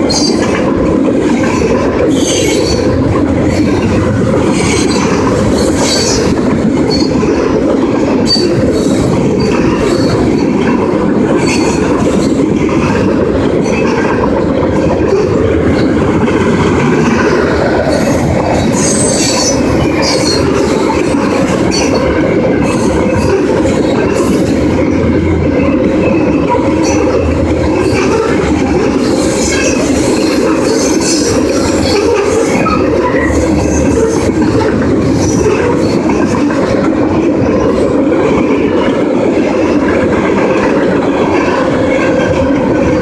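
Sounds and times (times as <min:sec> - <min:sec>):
train wheels squealing: 0:00.0 - 0:00.5, 0:02.1 - 0:03.7, 0:04.5 - 0:07.4, 0:08.2 - 0:10.6, 0:11.4 - 0:14.1, 0:17.2 - 0:24.5, 0:25.5 - 0:36.2
train wheels rumbling on rails: 0:00.0 - 0:43.0.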